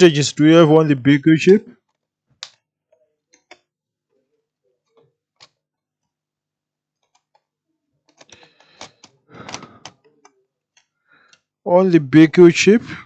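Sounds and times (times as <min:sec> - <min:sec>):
clicks and taps of small tools: 0:01.9 - 0:02.6, 0:03.3 - 0:03.7.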